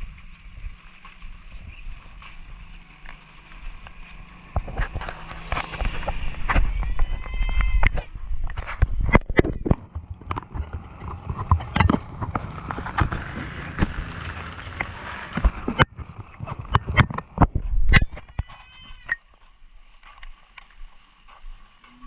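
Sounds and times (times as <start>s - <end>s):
footsteps knocking and clicking: 0.0s - 22.0s.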